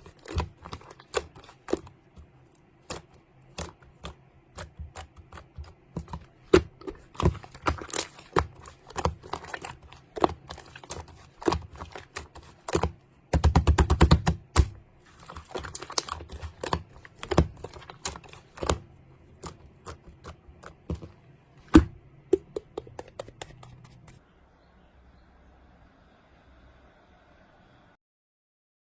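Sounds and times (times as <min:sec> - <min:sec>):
sharp clicks and taps: 0:21.7 - 0:24.2.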